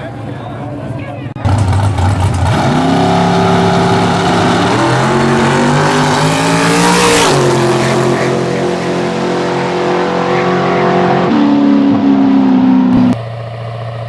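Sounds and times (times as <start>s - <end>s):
race car engine at full throttle: 0.0s - 14.0s.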